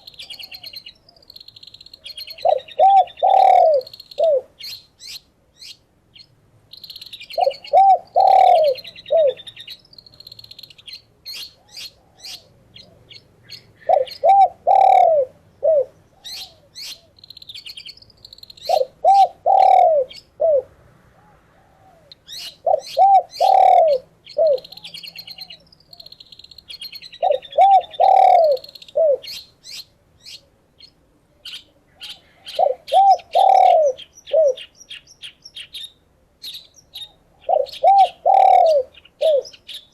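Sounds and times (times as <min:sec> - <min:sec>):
doves cooing: 0:00.0 - 0:01.3, 0:02.0 - 0:04.7, 0:07.3 - 0:09.7, 0:11.6 - 0:17.2, 0:18.6 - 0:26.1, 0:27.2 - 0:29.4, 0:31.9 - 0:34.7, 0:36.9 - 0:39.8
songbird chirping and chattering: 0:00.0 - 0:20.4, 0:22.0 - 0:39.9.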